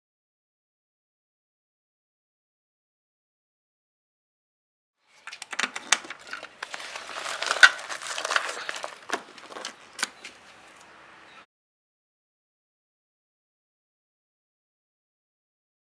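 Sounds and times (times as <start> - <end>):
crinkling rustling scrape: 5.1 - 10.9.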